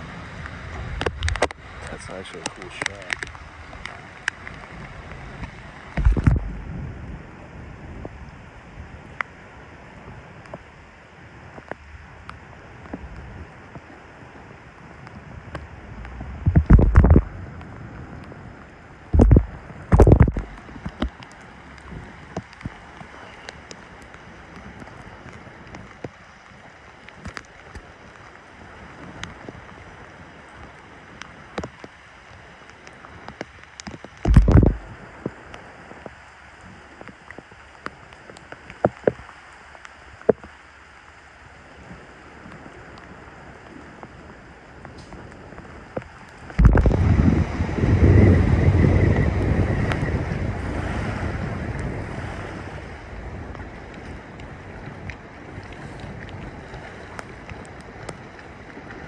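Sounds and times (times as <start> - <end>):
wind gusts buffeting microphone: 0.0 - 31.7, 32.4 - 37.1, 41.7 - 59.0
rushing wind: 0.0 - 39.4, 41.2 - 59.0
small clicks: 2.4 - 4.6.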